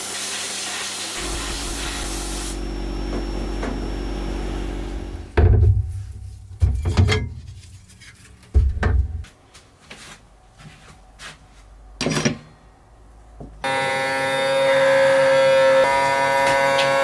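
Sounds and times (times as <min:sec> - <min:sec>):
electric buzz: 0:01.2 - 0:05.4.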